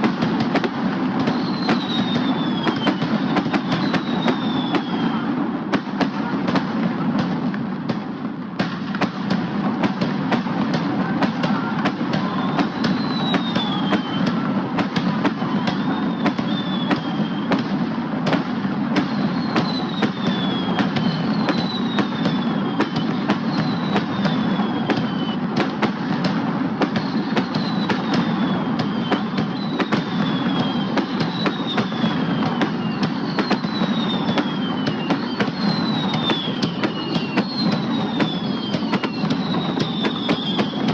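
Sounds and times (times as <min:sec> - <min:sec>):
fireworks exploding: 0:00.0 - 0:40.9
high falling whistles: 0:01.2 - 0:05.4, 0:11.3 - 0:17.7, 0:19.0 - 0:25.7, 0:26.8 - 0:40.9.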